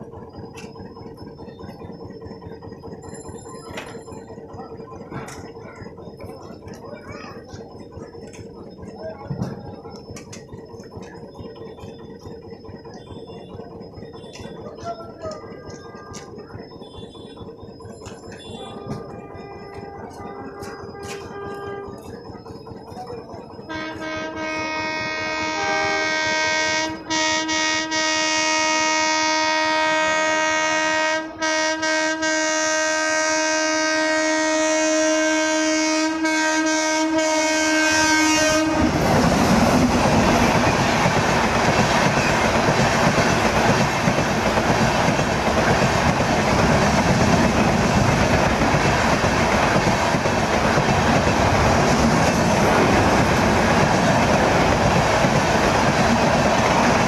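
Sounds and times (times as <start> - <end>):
train passing at speed: 0.0 - 57.0
train horn blast: 18.4 - 22.0, 23.7 - 39.0.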